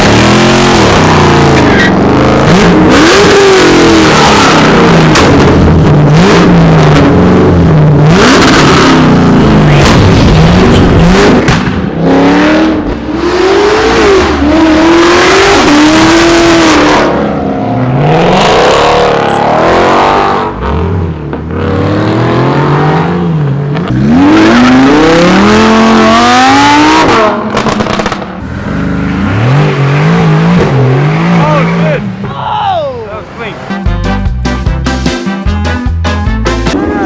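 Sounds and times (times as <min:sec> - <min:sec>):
car engines revving: 0:00.0 - 0:33.9
loud exhaust noise: 0:28.4 - 0:32.0.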